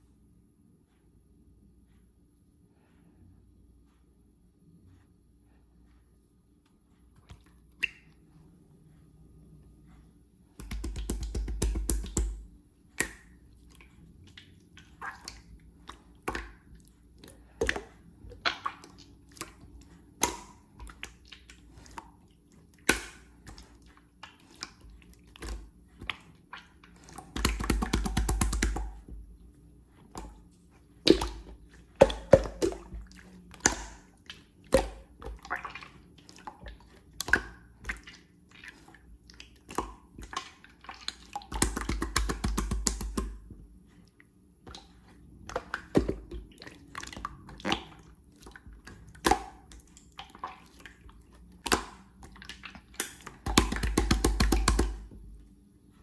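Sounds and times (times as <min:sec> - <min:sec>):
slime sticky pops and clicks: 0:10.6 - 0:13.3, 0:27.4 - 0:29.1, 0:41.5 - 0:43.4, 0:53.0 - 0:55.1.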